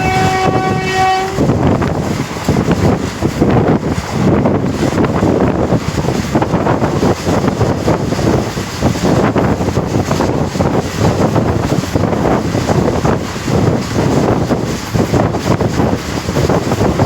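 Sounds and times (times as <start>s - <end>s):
moving train rumble: 0.0s - 17.0s
wind buffeting the microphone: 0.0s - 17.0s.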